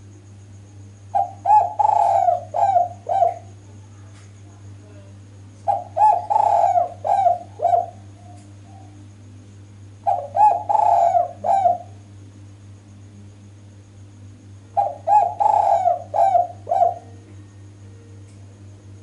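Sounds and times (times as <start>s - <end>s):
steady low hum: 0.0s - 19.0s
dove cooing: 1.1s - 3.6s, 5.6s - 9.0s, 10.0s - 12.0s, 14.7s - 17.4s.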